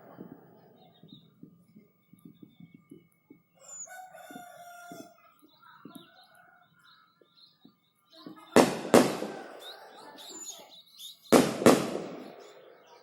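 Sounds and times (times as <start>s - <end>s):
rooster crowing: 3.6s - 5.2s, 8.9s - 10.2s.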